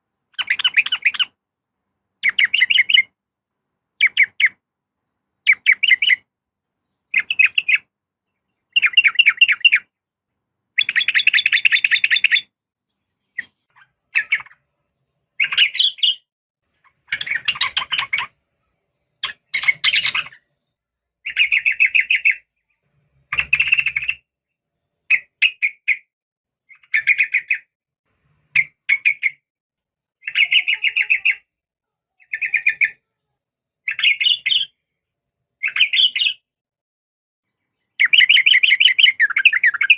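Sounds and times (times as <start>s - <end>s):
bird chattering calls: 0.4s - 1.3s, 2.2s - 3.1s, 4.0s - 4.6s, 5.5s - 6.2s, 7.1s - 7.8s, 8.7s - 9.8s, 10.8s - 12.5s, 38.0s - 39.9s.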